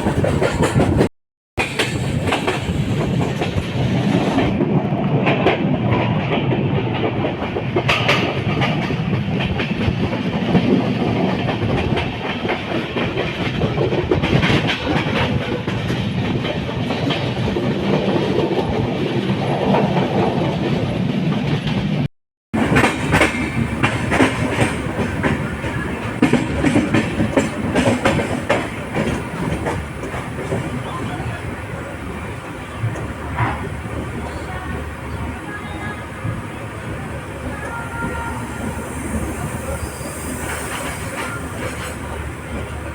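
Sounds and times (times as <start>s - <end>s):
train coaches rumbling on track: 0.0s - 42.9s
wheels clattering over rail joints: 22.6s - 35.1s.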